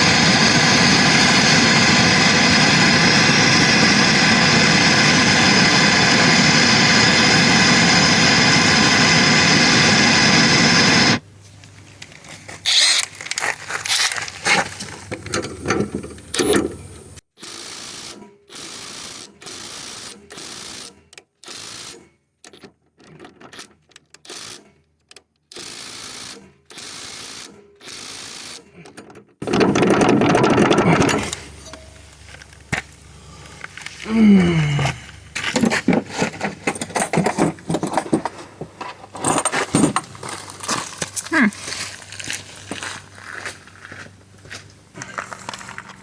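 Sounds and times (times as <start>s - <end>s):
cordless power tool bursts: 0.0s - 11.2s, 12.6s - 22.1s, 24.2s - 24.7s, 25.5s - 28.7s, 29.4s - 36.8s
lawn mower engine running: 0.0s - 11.2s, 12.2s - 17.2s, 29.4s - 43.7s.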